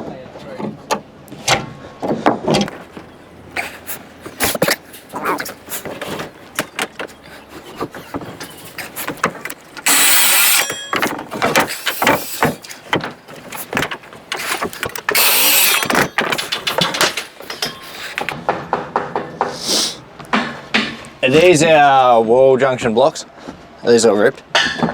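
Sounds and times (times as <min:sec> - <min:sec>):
knocks from nailing timber: 0:09.0 - 0:19.6, 0:20.2 - 0:21.1
hissing bursts: 0:09.8 - 0:10.8, 0:14.4 - 0:16.0, 0:19.5 - 0:20.0.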